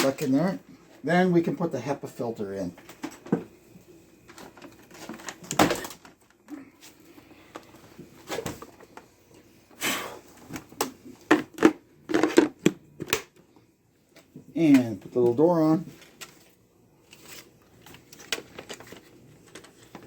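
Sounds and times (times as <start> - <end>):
plastic parts clicking and knocking: 10.5 - 13.4.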